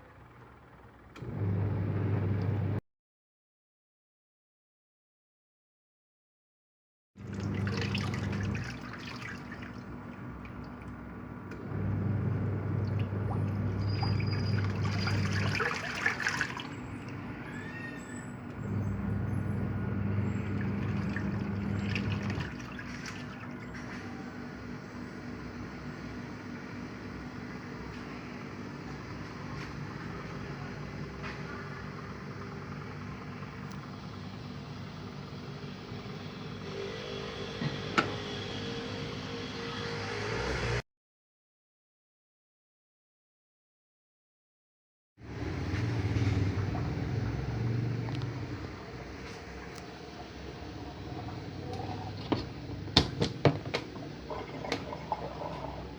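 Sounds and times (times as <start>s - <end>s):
washing machine motor humming: 0.0s - 2.8s, 7.2s - 39.8s, 45.2s - 55.9s
water sloshing: 7.2s - 24.7s, 48.1s - 55.9s.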